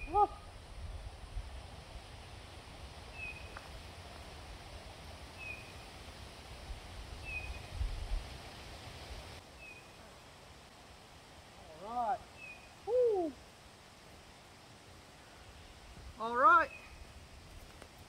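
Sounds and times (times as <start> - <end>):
bird calling: 12.0 - 13.4.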